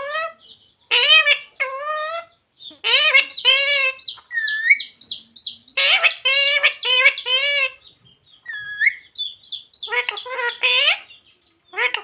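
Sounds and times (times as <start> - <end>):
parrot squawking: 0.0 - 12.0
parrot chirping and whistling: 1.0 - 7.8, 8.4 - 11.1.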